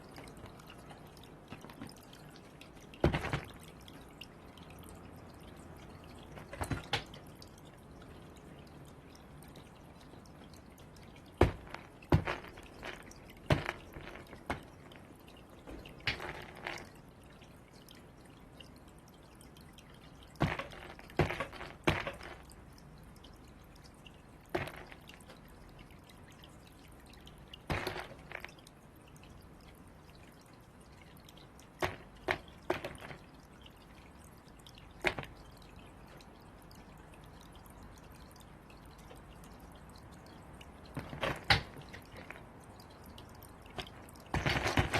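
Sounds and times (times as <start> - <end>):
crows pecking and knocking balls: 2.9 - 3.6, 11.4 - 17.0, 20.4 - 22.5, 24.5 - 25.2, 27.6 - 28.6, 31.8 - 33.2, 35.0 - 35.5, 41.0 - 42.5, 43.7 - 44.9.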